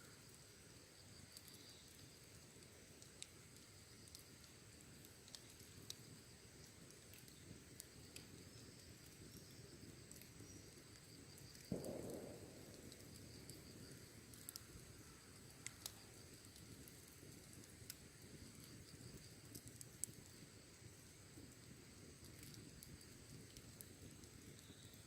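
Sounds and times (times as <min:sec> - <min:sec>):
fire crackles: 0:00.0 - 0:25.0
wood fire burning: 0:00.0 - 0:25.0
insects chirping: 0:07.4 - 0:16.8, 0:24.4 - 0:25.0.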